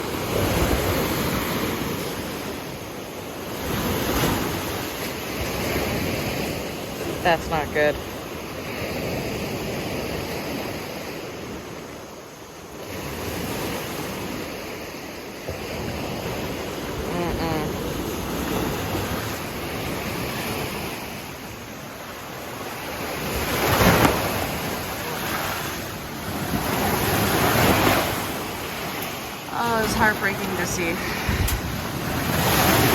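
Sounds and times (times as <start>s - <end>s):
waves washing onto shore: 0.0s - 32.9s
wind buffeting microphone: 30.8s - 32.9s.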